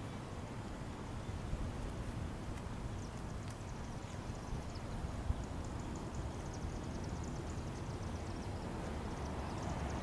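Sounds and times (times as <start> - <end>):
rapid high ticking chirps: 3.0 - 10.0.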